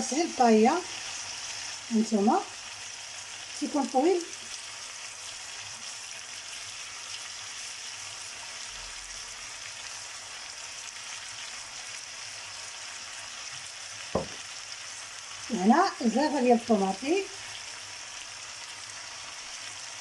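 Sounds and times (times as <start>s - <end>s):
food sizzling in oil: 0.0s - 20.0s
short knock: 14.2s - 14.4s.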